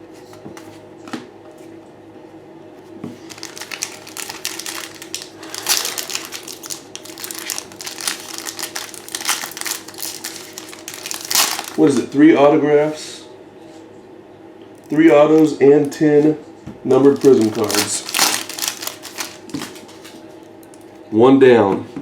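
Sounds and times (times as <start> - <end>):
foil wrapper crinkling: 3.2 - 12.0, 16.9 - 20.9.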